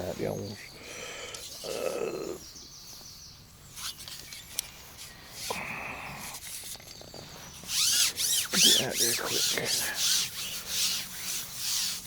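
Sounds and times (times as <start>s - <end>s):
birds singing and chirping: 0.0s - 12.0s
short rustle: 6.4s - 12.0s.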